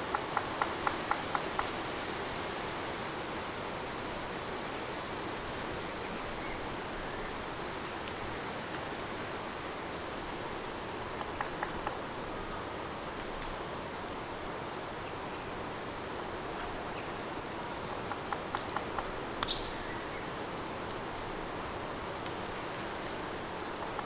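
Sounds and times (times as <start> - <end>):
steady rain falling: 0.0 - 14.2
small light ticks: 8.0 - 8.9, 13.2 - 13.6, 18.1 - 19.6, 22.2 - 22.5.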